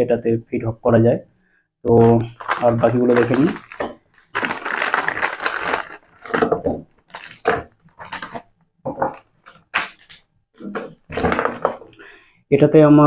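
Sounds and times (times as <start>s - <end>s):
rustling and clacking of parts: 1.9s - 12.1s.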